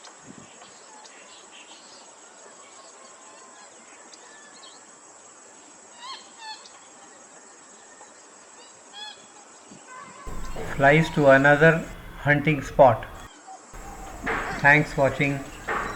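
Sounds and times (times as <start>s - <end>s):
faint bird chirps: 10.3s - 15.9s
high insect drone: 10.3s - 15.9s
loud bird calls: 10.3s - 15.9s.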